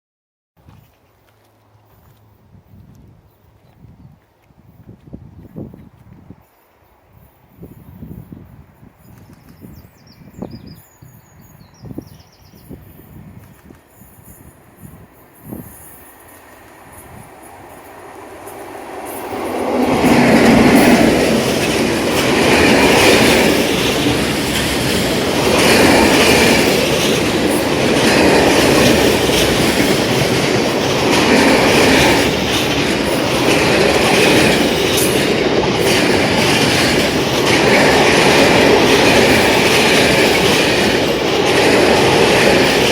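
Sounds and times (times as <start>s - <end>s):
freight train passing: 11.4s - 42.9s.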